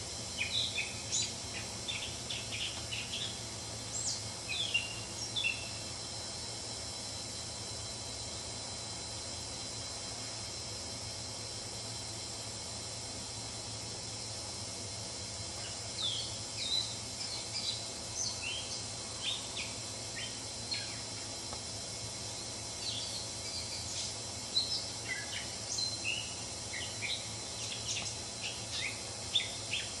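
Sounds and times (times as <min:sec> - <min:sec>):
steady outdoor hiss: 0:00.0 - 0:30.0
wild birds chirping: 0:00.3 - 0:05.8, 0:15.6 - 0:21.2, 0:22.7 - 0:30.0.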